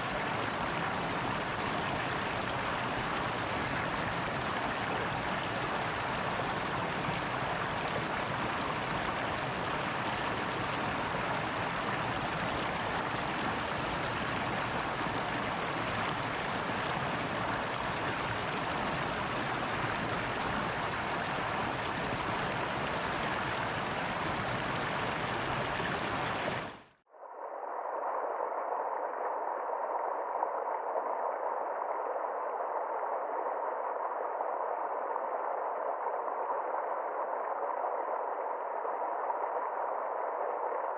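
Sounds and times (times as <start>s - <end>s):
flowing water rushing: 0.0s - 26.9s.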